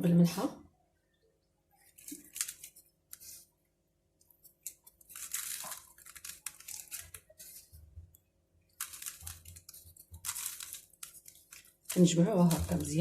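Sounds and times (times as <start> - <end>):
coarse salt crunching: 4.5 - 7.7, 8.8 - 13.0.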